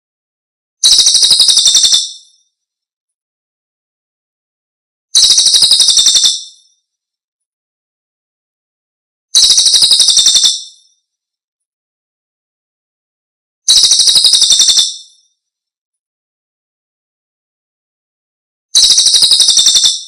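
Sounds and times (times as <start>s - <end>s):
bird trill: 0.8s - 2.6s, 5.2s - 6.8s, 9.4s - 11.1s, 13.7s - 15.4s, 18.8s - 20.0s.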